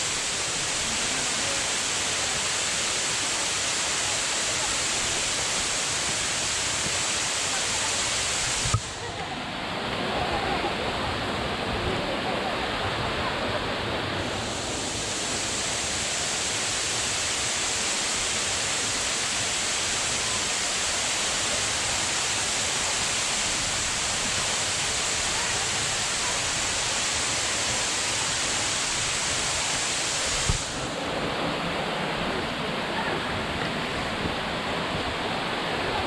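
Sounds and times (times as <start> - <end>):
waterfall rushing: 0.0 - 36.0
bright hissing layer: 14.3 - 31.0.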